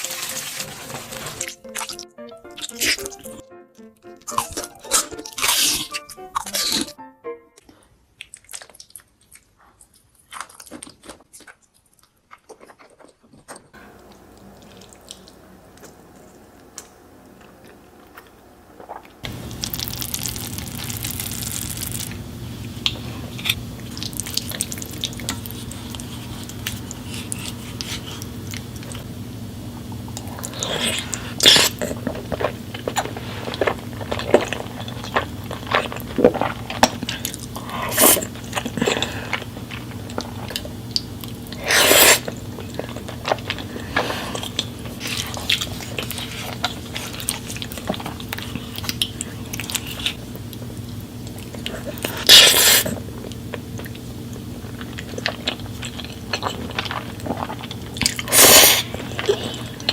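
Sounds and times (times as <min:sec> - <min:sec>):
wet chewing and smacking: 0:04.2 - 0:07.0, 0:08.2 - 0:16.9, 0:17.6 - 0:29.1, 0:30.1 - 0:59.9
steady low hum: 0:13.8 - 0:59.9.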